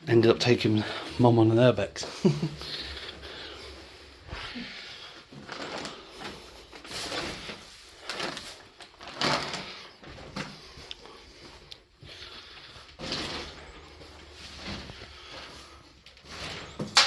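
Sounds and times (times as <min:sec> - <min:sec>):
footsteps crunching on debris: 0:09.9 - 0:16.5.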